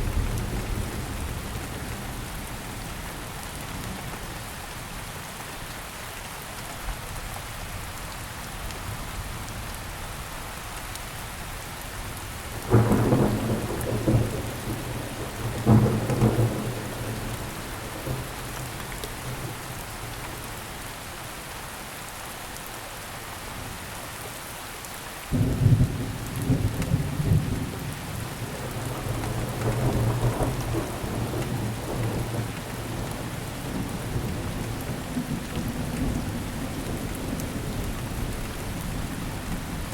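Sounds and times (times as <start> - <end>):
thunder rumbling: 12.6 - 20.5, 25.4 - 39.9.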